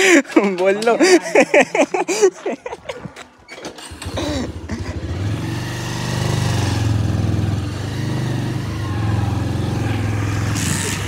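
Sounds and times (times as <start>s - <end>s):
small motorcycle engine running: 3.7s - 11.0s.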